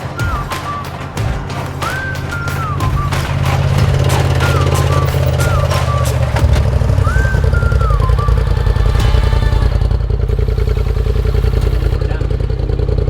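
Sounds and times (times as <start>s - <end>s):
sliding higher tones: 0.0s - 12.3s
vehicle engine running under load: 0.1s - 13.0s.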